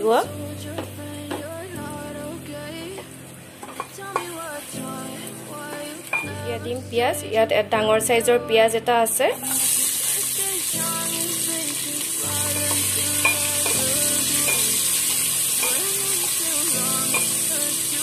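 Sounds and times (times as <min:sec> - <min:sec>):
soft background music: 0:00.0 - 0:18.0
onions sizzling in a pan: 0:09.4 - 0:18.0.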